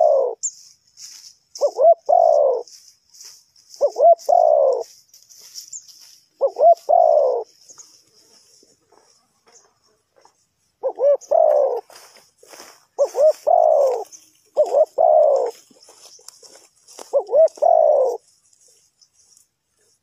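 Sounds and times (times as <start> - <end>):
dove cooing: 0.0 - 0.6, 1.6 - 2.8, 3.7 - 5.0, 6.4 - 7.8, 10.8 - 12.0, 12.9 - 16.1, 17.0 - 18.2.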